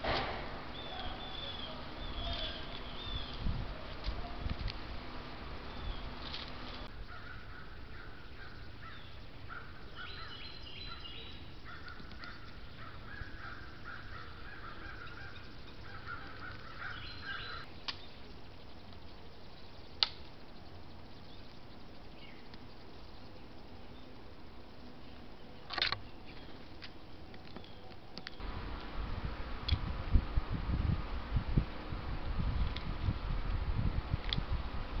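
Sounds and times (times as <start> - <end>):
harsh bird calls: 0.6 - 4.4, 6.8 - 24.2.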